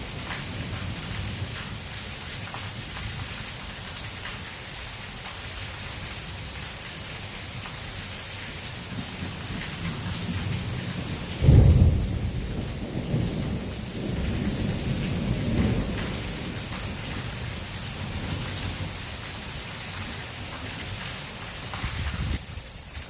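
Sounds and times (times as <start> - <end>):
heavy rain pouring: 0.0 - 23.0
thunder rumbling: 10.3 - 19.0
loud thunderclap: 11.4 - 16.6.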